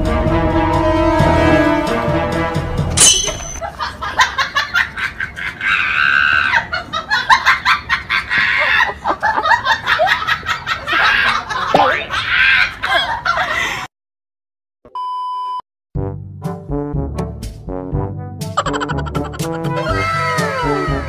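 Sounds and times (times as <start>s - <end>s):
laughter in choppy bursts: 3.6s - 13.9s, 18.5s - 19.9s.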